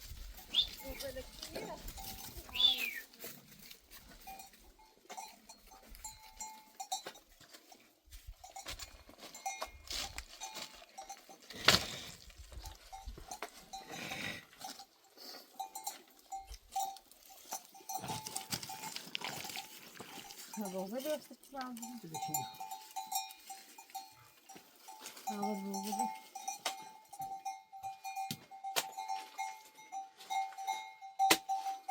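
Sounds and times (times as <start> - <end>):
livestock bells clinking: 0.0 - 31.9.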